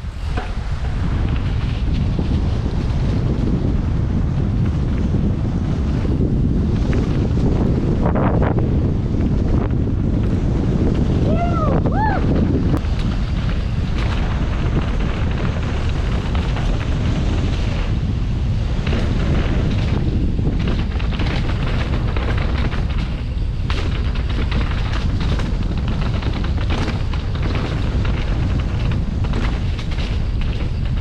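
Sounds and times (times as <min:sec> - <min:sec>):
wind buffeting microphone: 0:00.0 - 0:31.0
knocks and rattles: 0:12.0 - 0:31.0.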